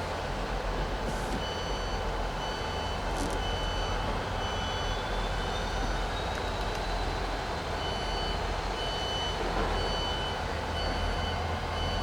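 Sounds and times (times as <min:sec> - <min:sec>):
electronic warning beeps: 0:01.2 - 0:06.3, 0:07.8 - 0:12.0.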